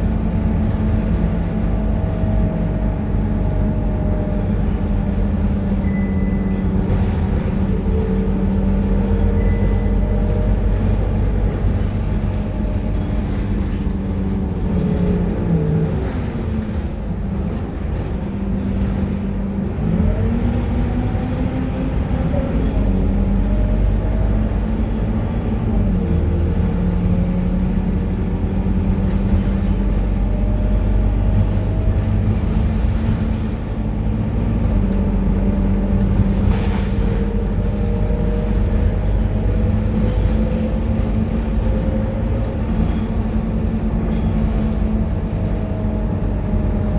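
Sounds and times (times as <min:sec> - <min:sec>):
bus diesel engine running: 0:00.0 - 0:46.9
short high beeps: 0:05.8 - 0:06.6, 0:09.4 - 0:10.1.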